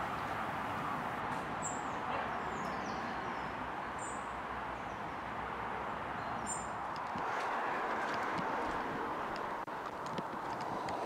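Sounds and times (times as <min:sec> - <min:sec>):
small birds chirping: 0:01.6 - 0:05.2.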